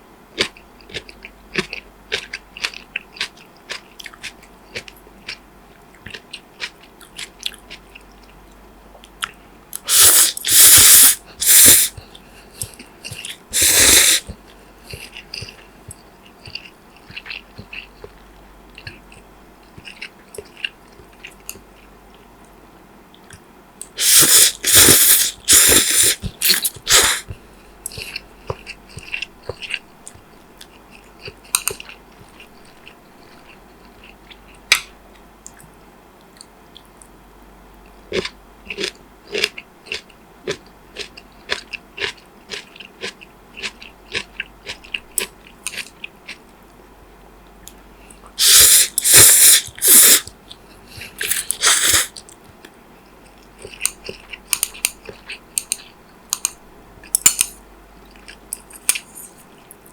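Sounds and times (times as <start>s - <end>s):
wet chewing: 0.4s - 8.4s, 9.0s - 22.3s, 23.2s - 35.7s, 38.1s - 46.4s, 47.7s - 59.9s
loud crunching bites: 24.0s - 27.2s, 48.4s - 50.3s, 51.1s - 52.2s.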